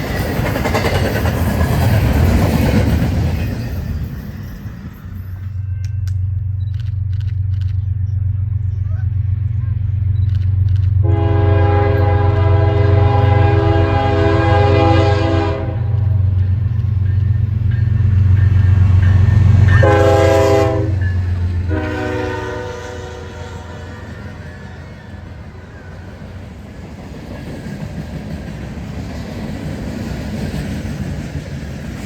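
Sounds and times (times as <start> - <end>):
train rumbling past: 0.0 - 32.0
locomotive air horn blasts: 11.0 - 16.3, 19.7 - 21.1, 21.7 - 25.7.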